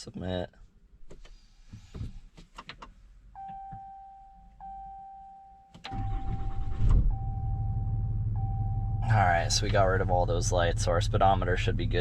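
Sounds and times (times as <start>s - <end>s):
dashboard warning chime: 3.4s - 10.1s
diesel engine cranking and idling: 5.8s - 12.0s.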